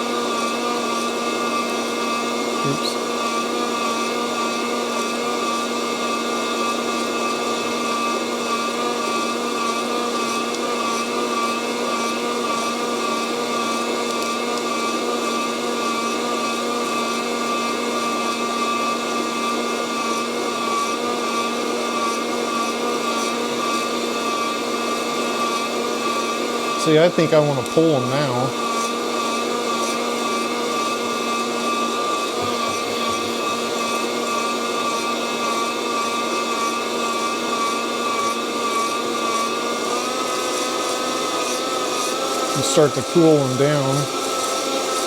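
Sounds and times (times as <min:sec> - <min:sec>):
coffee roaster fan whine: 0:00.0 - 0:45.0
hot air hissing: 0:42.5 - 0:44.1.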